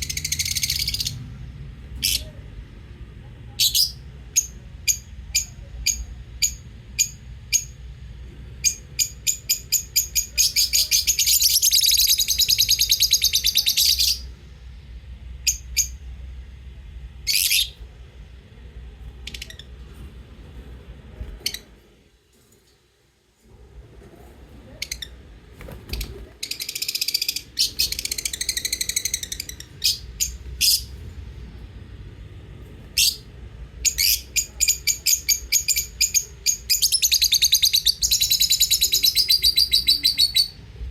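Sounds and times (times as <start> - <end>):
lovebirds chirping: 0.0 - 1.3, 8.6 - 14.4, 17.2 - 17.8, 24.8 - 31.1, 32.9 - 40.9.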